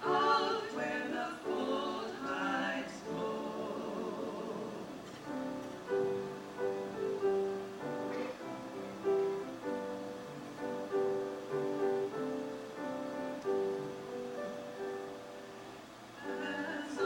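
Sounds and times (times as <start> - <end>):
voices singing slow song: 0.0 - 5.2, 16.0 - 17.0.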